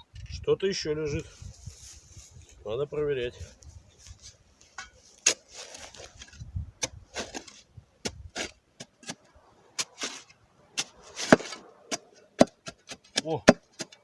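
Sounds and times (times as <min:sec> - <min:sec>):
spade digging into soil: 0:04.6 - 0:14.0.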